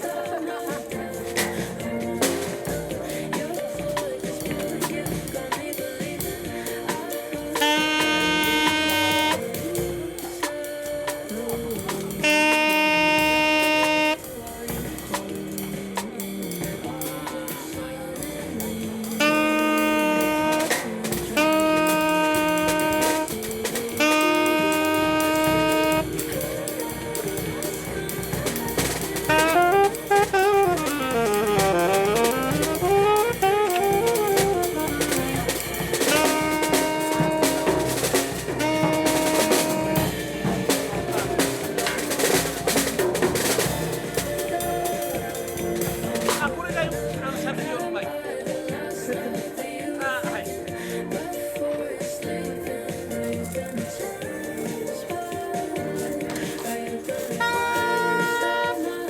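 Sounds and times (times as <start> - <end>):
drum kit: 0.0 - 59.0
saxophone playing: 6.8 - 10.6, 12.1 - 14.8, 19.1 - 48.2, 56.1 - 59.0.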